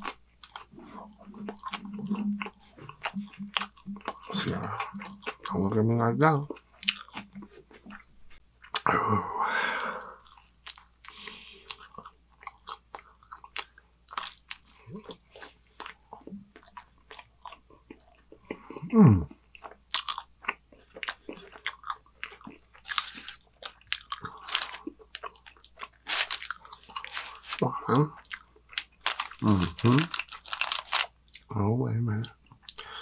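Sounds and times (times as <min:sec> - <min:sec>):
wet mouth clicks: 0:00.0 - 0:05.6, 0:06.8 - 0:08.1
man chewing pizza: 0:00.0 - 0:05.8, 0:06.4 - 0:08.9, 0:09.8 - 0:31.5.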